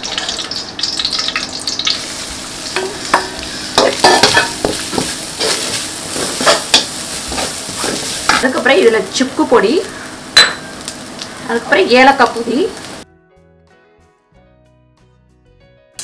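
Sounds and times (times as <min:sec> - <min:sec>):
coconut frying with a sizzle: 0:00.0 - 0:13.0
wooden spoon scraping a pan: 0:02.8 - 0:08.6.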